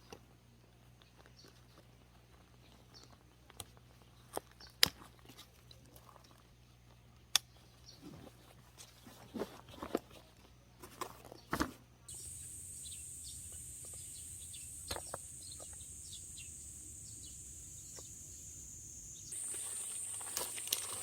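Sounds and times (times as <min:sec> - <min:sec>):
high-pitched insect chorus: 0:12.1 - 0:21.0
short bird chirps: 0:12.1 - 0:21.0.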